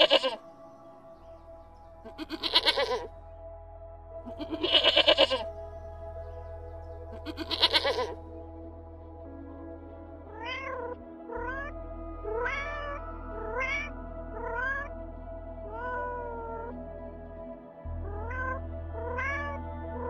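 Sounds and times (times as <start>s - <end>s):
cat meowing: 0.0s - 0.4s, 2.1s - 3.1s, 4.3s - 5.4s, 7.3s - 8.2s
sheep bleating: 0.0s - 0.4s, 2.1s - 3.1s, 4.3s - 5.5s, 7.2s - 8.2s
background music: 0.0s - 20.0s.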